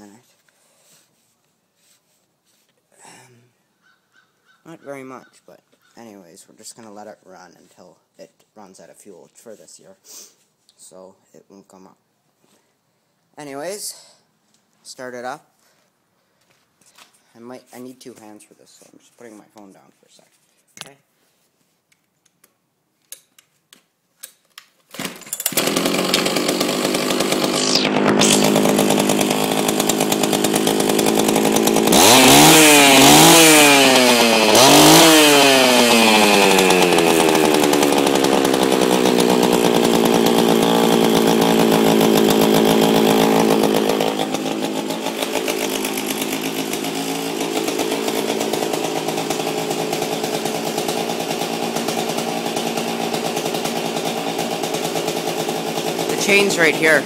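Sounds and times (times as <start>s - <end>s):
chainsaw engine running and revving: 25.5s - 57.0s.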